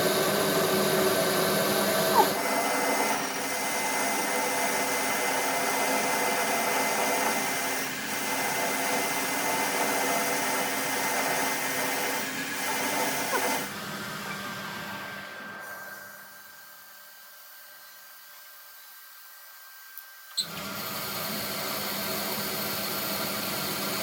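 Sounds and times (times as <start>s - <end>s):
electric power tool whining: 0.0s - 14.7s.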